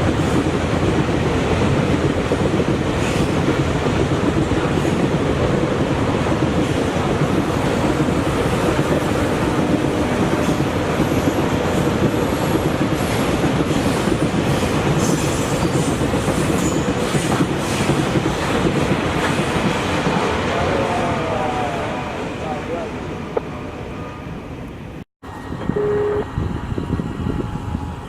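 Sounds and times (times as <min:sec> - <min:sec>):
train wheels clattering over rails: 0:00.0 - 0:20.4.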